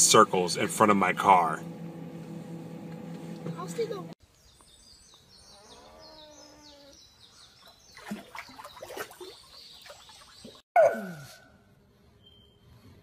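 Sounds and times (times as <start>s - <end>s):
small birds chirping: 3.5s - 10.6s
splashes and knocks: 7.9s - 10.6s.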